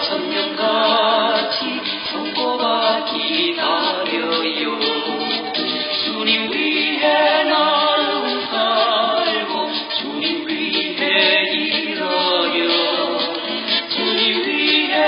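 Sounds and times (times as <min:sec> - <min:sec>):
voices singing in harmony: 0:00.0 - 0:15.0.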